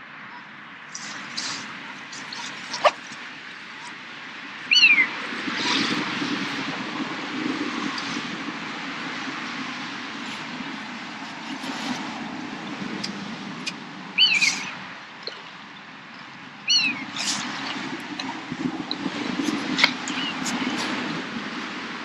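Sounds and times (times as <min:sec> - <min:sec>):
bird calls: 0:00.3 - 0:04.0, 0:04.6 - 0:05.8, 0:14.2 - 0:20.9.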